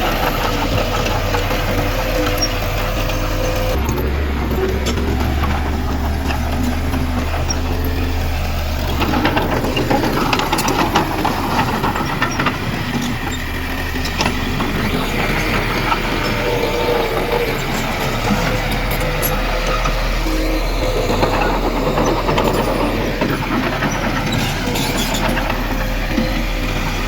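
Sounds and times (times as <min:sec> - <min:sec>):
diesel machine engine rumbling: 0:00.0 - 0:27.0.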